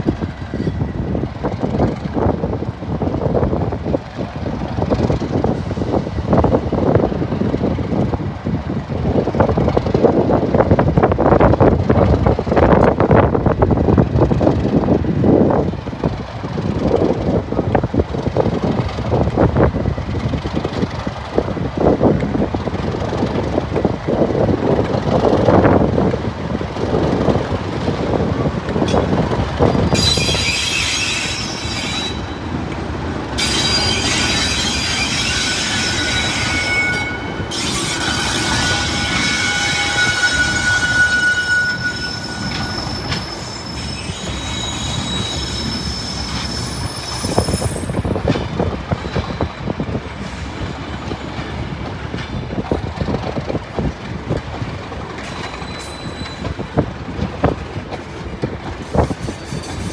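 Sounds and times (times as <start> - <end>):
train rumbling and clattering: 0.0 - 59.9
wheels squealing on rail: 26.8 - 53.5, 55.0 - 57.6, 58.2 - 59.9.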